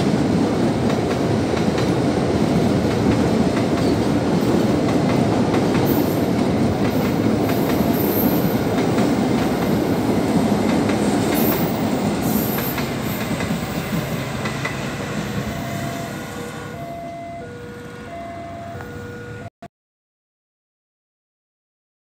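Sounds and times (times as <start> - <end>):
train wheels rumbling and clattering: 0.0 - 16.6.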